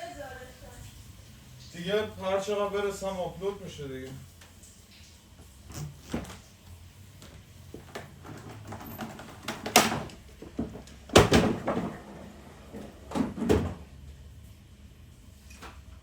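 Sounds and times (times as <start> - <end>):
loud knocks with rattling clatter: 9.0 - 12.3.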